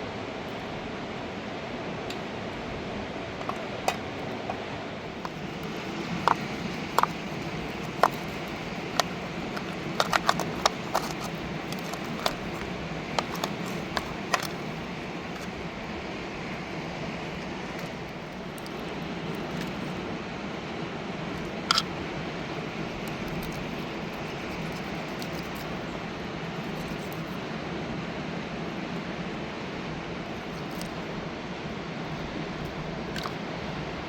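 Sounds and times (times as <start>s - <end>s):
sharp knocks and clicks: 5.2s - 14.7s.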